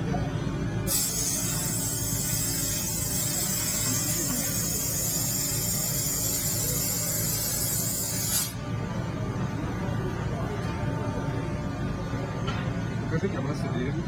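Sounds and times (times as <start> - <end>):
gas hissing from cutting head: 0.9 - 8.6.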